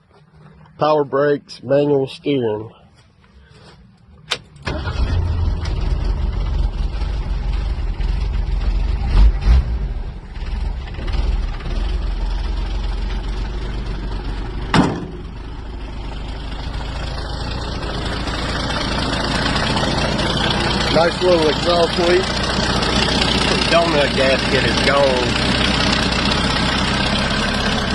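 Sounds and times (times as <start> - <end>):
pickup engine running: 4.6 - 27.9
thumps: 14.7 - 15.4
exhaust leak: 15.4 - 27.9.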